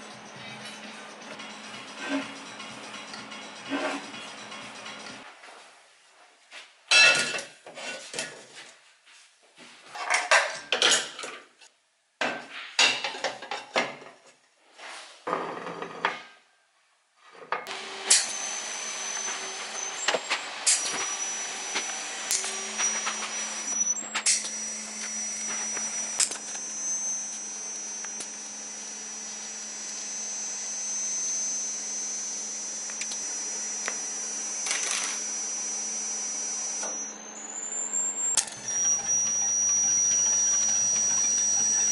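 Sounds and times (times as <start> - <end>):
welder hissing and humming: 17.7 - 41.9
high-pitched whistle: 18.2 - 41.9.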